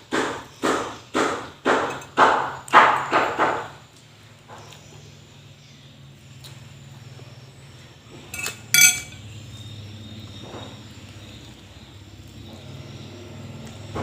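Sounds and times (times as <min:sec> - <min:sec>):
tableware clinking: 0:08.3 - 0:09.2.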